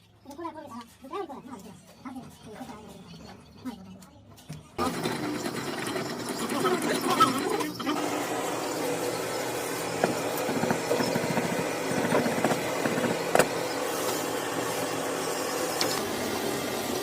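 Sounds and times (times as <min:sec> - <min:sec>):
small machine running: 0:04.8 - 0:17.0.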